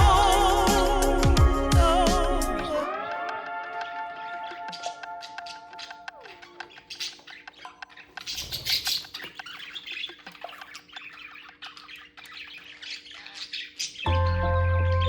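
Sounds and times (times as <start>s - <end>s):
budgerigar chirping and clicking: 4.7s - 14.4s.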